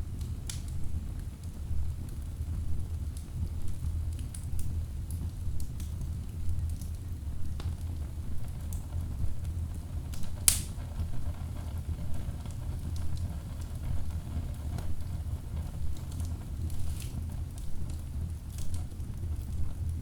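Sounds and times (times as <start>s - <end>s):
fire crackles: 0.0s - 20.0s
low rumble of flames: 0.0s - 20.0s
loud fire pop: 10.4s - 11.0s.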